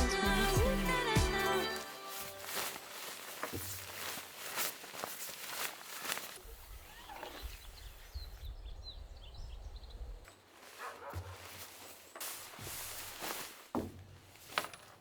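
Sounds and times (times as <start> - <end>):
high-pitched animal calls: 6.4 - 8.2.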